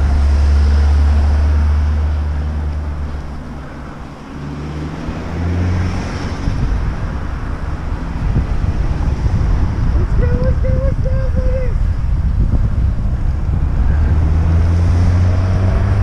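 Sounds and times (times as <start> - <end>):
car passing by: 0.0 - 10.0, 13.4 - 16.0
wind buffeting microphone: 4.8 - 16.0
second car engine passing: 13.7 - 16.0.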